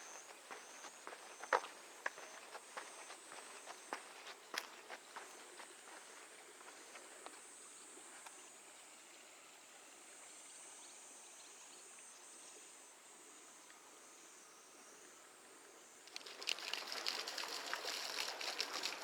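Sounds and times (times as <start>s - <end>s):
high insect chirr: 0.0s - 8.2s
faint footsteps: 0.0s - 8.4s.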